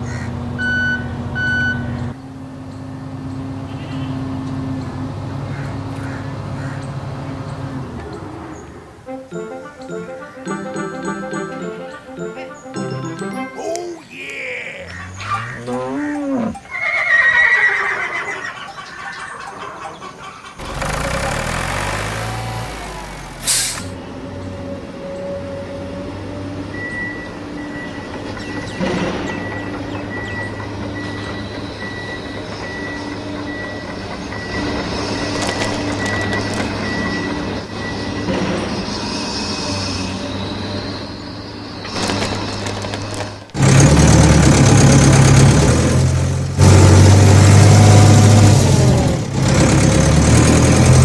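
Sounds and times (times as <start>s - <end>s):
steady motor drone: 20.6s - 23.9s
hiss ending in sharp click: 23.4s - 24.0s.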